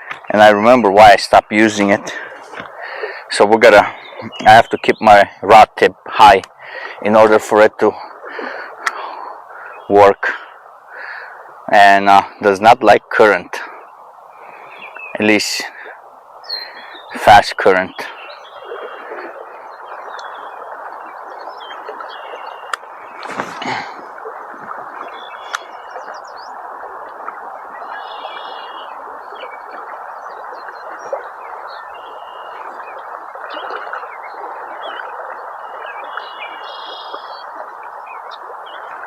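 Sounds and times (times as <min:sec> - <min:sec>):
fast-flowing river water: 0:00.0 - 0:39.0
small birds chirping: 0:13.8 - 0:26.6, 0:27.6 - 0:39.0.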